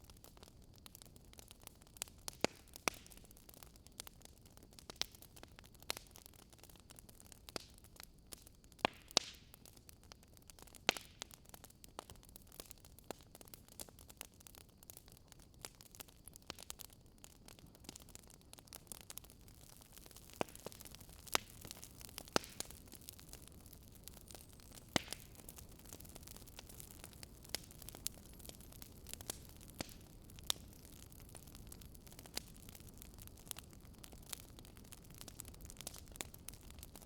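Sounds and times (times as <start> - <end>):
faint steady hiss: 0.0 - 37.0
wood fire crackling and popping: 0.0 - 37.0.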